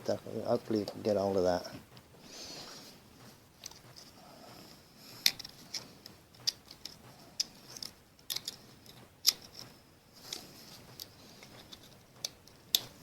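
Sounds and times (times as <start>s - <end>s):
metal hand tool clicking and scraping: 5.2s - 13.0s.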